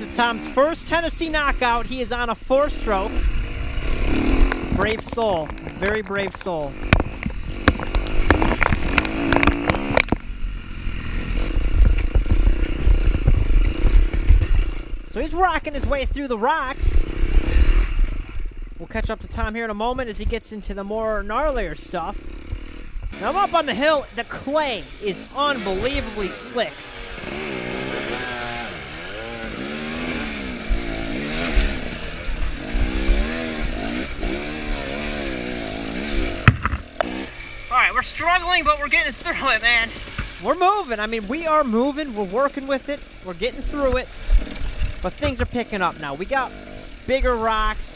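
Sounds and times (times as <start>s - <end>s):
dirt bike engine rumble: 0.0s - 47.9s
dull thumps: 36.3s - 37.2s.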